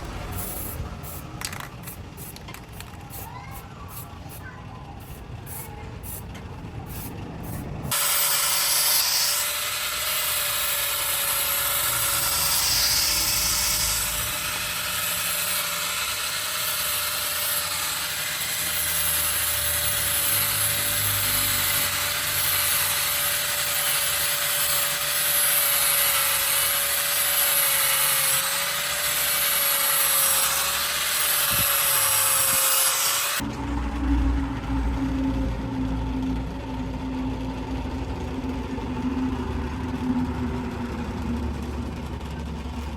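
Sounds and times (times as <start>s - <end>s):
hiss of tool on material: 0.0s - 4.4s, 5.0s - 6.3s, 6.9s - 33.4s
power tool motor hum: 6.9s - 33.5s.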